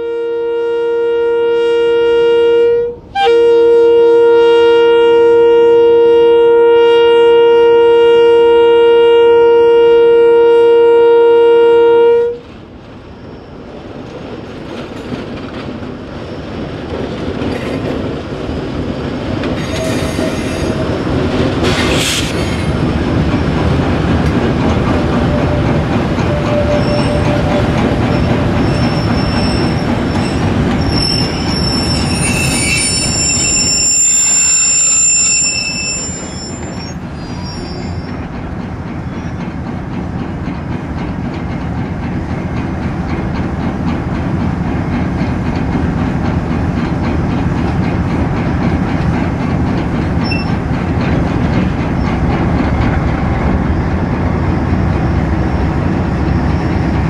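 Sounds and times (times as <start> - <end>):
locomotive air horn: 0.0 - 12.4, 25.2 - 29.8, 31.0 - 37.9
diesel locomotive engines: 0.0 - 57.0
faint wheel squeals: 26.3 - 38.2.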